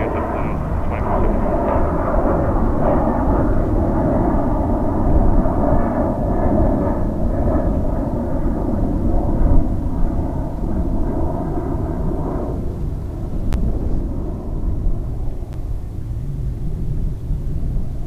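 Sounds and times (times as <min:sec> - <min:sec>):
buzzing engine tones: 0:00.0 - 0:02.9
jet engines rumbling: 0:00.0 - 0:15.5.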